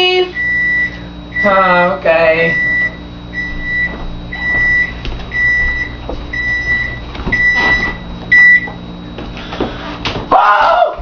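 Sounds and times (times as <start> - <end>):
oven timer beeping: 0.0 - 8.8.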